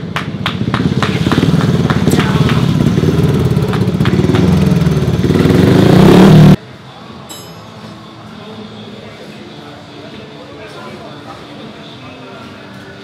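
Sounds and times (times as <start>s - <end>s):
motorcycle engine running hard: 0.0s - 6.6s.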